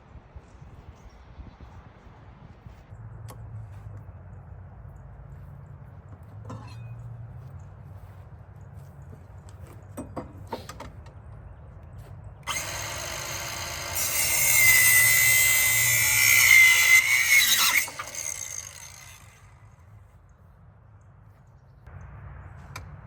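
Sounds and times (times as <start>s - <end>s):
circular saw cutting wood: 12.5s - 19.8s.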